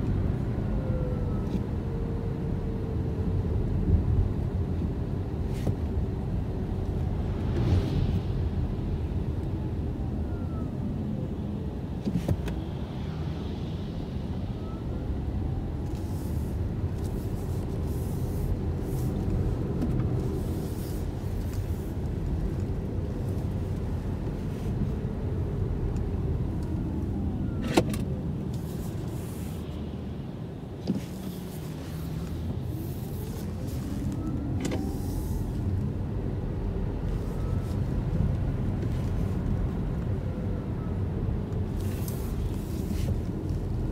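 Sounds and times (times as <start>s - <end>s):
tyre and road rumble: 15.8s - 40.2s.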